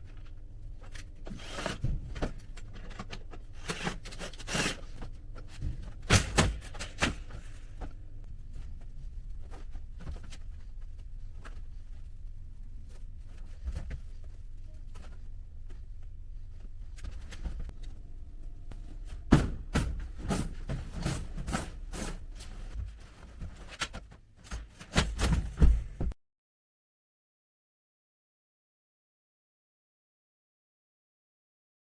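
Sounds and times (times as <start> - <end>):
steady low rumble: 5.1 - 23.1
knocks and thumps: 24.6 - 26.2.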